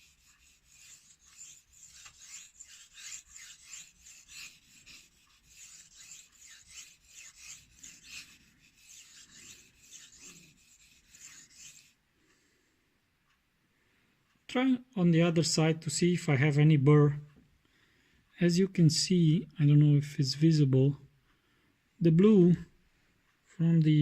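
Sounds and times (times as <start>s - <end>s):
knife scraping on whetstone: 0.0s - 12.0s.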